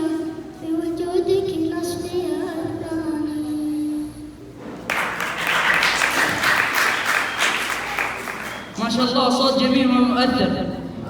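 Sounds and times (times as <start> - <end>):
audience applause: 4.9 - 8.8.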